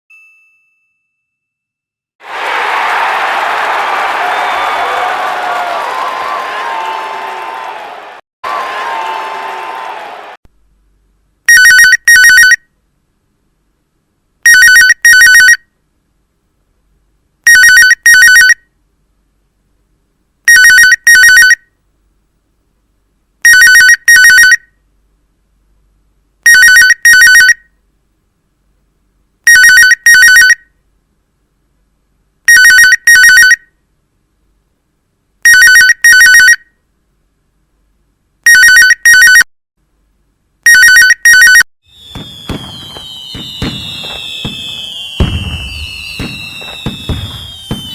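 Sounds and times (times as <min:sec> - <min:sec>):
telephone ringing: 0:38.5 - 0:39.4, 0:40.7 - 0:41.6.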